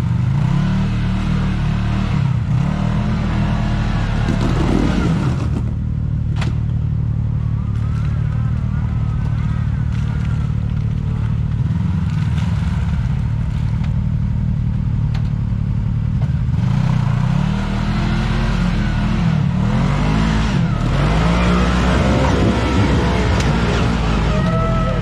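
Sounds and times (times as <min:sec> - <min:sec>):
off-road vehicle engine revving: 0:00.0 - 0:14.0, 0:16.3 - 0:25.0
low rumble: 0:04.0 - 0:17.4, 0:18.9 - 0:25.0.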